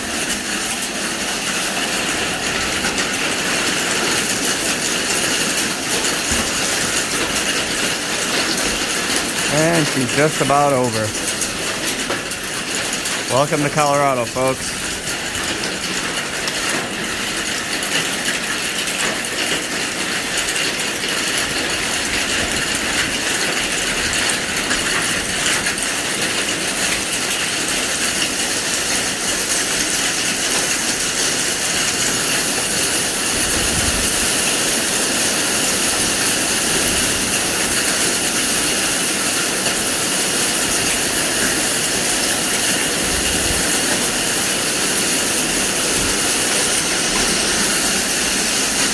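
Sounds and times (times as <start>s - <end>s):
rain and hail falling hard: 0.0s - 48.9s.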